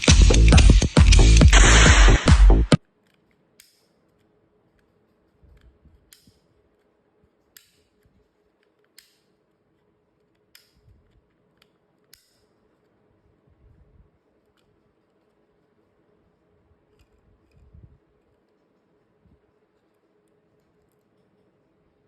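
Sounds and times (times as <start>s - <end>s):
electronic dance music: 0.0s - 2.8s.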